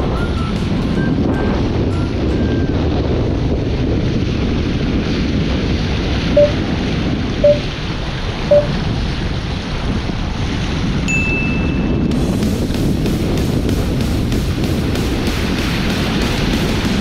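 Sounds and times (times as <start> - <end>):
wind buffeting microphone: 0.0 - 17.0
short beeps: 6.4 - 6.6, 7.4 - 7.7, 8.5 - 8.7.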